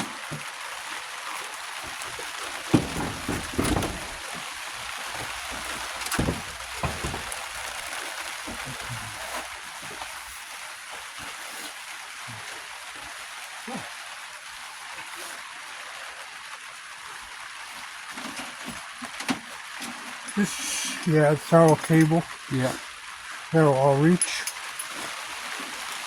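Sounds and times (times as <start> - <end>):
knocks and clunks: 0.0 - 0.6, 1.8 - 9.2
rain hissing: 0.0 - 26.0.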